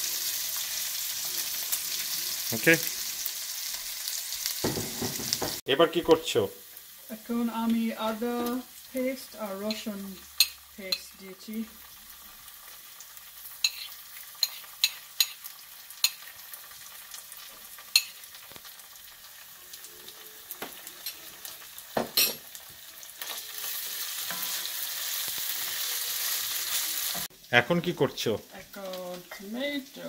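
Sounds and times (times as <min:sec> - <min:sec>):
onions sizzling in oil: 0:00.0 - 0:30.0
knock: 0:04.6 - 0:05.6
spoon clicking on pan: 0:10.4 - 0:11.1, 0:13.6 - 0:15.4, 0:16.0 - 0:16.2, 0:17.9 - 0:18.2.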